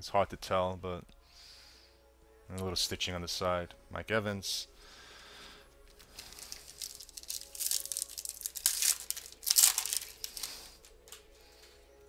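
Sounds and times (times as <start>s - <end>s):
wrapper crinkling and tearing: 5.9s - 11.6s.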